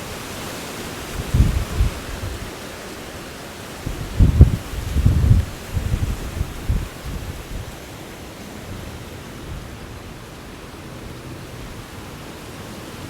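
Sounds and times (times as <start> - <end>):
wind buffeting microphone: 1.0 - 2.6, 3.8 - 7.8.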